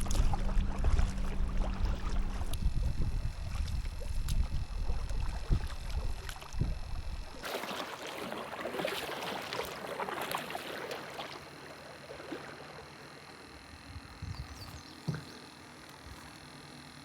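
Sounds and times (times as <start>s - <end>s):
wind rumble on microphone: 0.0s - 7.4s, 13.8s - 14.8s
paddle splashing water: 0.0s - 13.9s, 14.5s - 16.3s.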